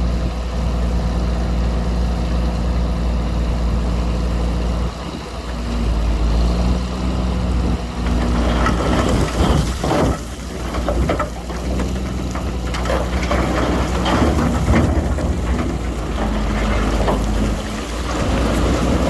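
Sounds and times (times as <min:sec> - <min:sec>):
heavy diesel engine running: 0:00.0 - 0:19.0
clattering and crackling: 0:08.0 - 0:19.0.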